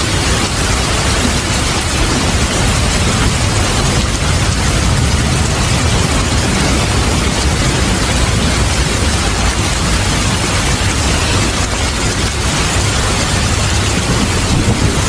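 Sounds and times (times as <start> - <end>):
heavy rain: 0.0 - 15.0
low rumble of thunder: 0.0 - 15.0.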